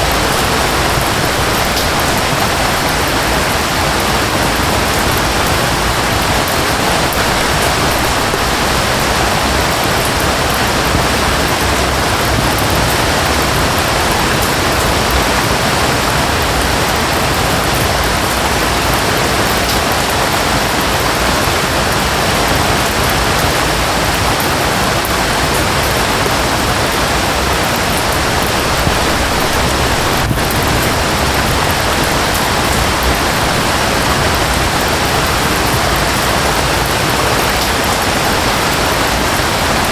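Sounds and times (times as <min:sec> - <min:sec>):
falling water and rain: 0:00.0 - 0:39.9.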